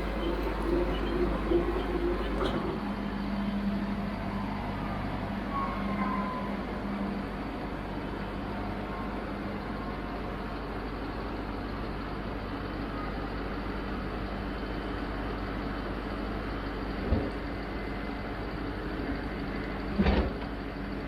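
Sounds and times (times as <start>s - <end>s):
tractor engine running: 0.0s - 4.2s.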